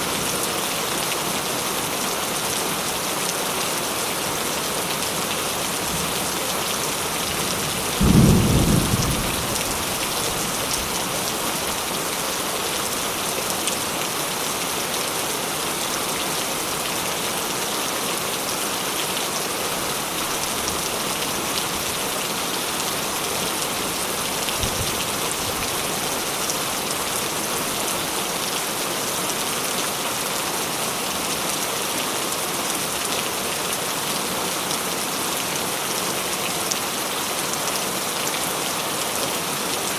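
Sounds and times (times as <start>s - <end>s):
rain falling: 0.0s - 39.9s
thunder: 7.9s - 10.6s.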